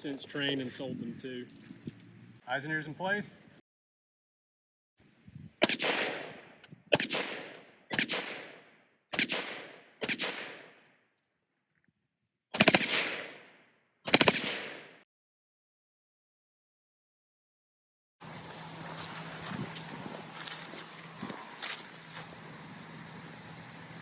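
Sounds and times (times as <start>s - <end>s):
automatic gunfire bursts: 5.6s - 10.7s, 12.6s - 13.4s, 14.1s - 15.0s
suppressed rifle shots echoing: 5.6s - 10.9s, 12.6s - 15.0s.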